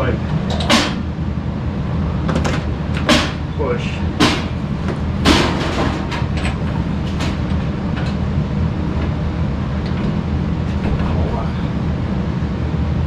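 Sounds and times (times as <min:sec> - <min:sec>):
low machine rumble: 0:00.0 - 0:13.0
sheet metal clicks and knocks: 0:00.3 - 0:01.2, 0:02.3 - 0:03.6, 0:04.2 - 0:11.1.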